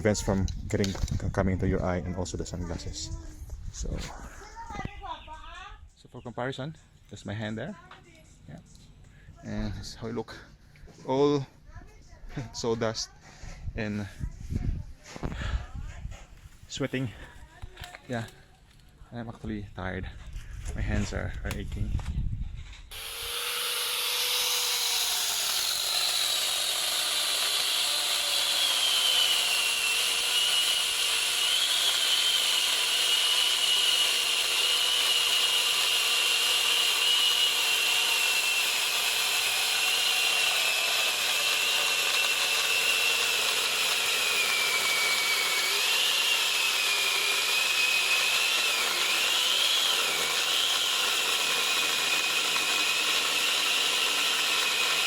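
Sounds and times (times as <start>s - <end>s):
chainsaw grinder sawing wood: 22.9s - 55.0s.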